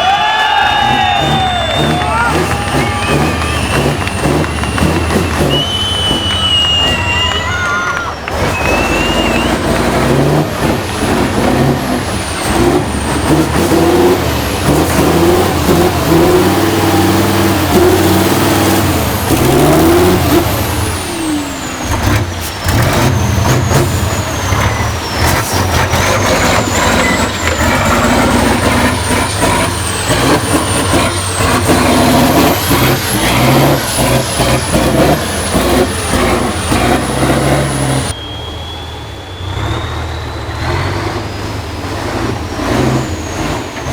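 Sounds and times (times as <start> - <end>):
truck diesel engine revving: 0.0 - 43.9
thin high whistle: 1.4 - 9.8, 23.2 - 41.6.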